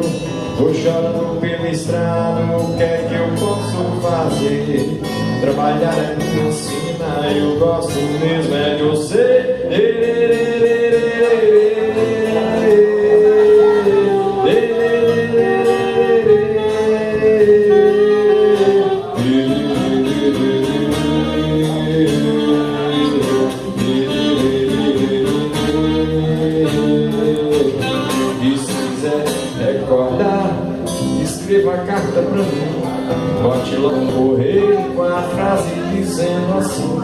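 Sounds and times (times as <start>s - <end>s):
strummed acoustic guitar: 0.0s - 37.0s
saxophone melody: 9.9s - 28.8s.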